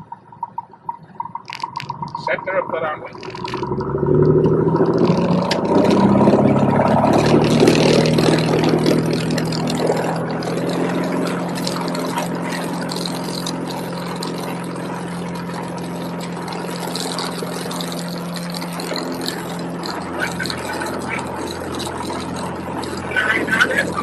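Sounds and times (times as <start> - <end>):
propeller plane engine running: 0.0 - 24.0.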